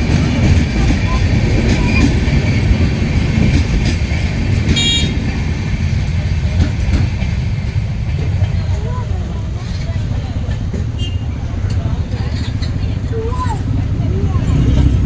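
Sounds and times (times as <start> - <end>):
train wheels rumbling on track: 0.0 - 15.0
short high train horn toot: 4.8 - 5.2.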